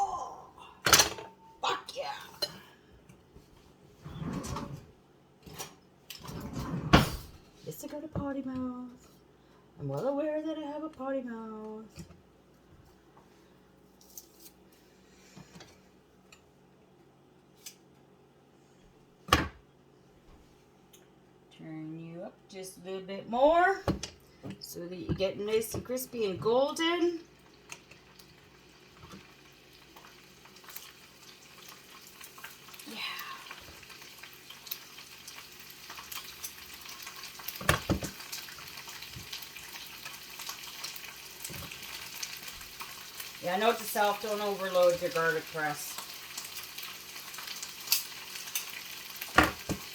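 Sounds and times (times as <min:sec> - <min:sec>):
ginger frying in oil: 0:26.0 - 0:49.9.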